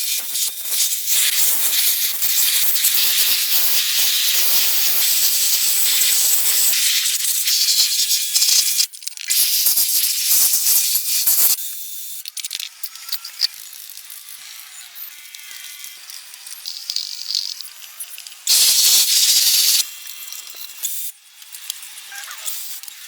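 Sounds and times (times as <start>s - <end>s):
loud hiss of air or spray: 0.0s - 11.6s, 18.5s - 19.8s.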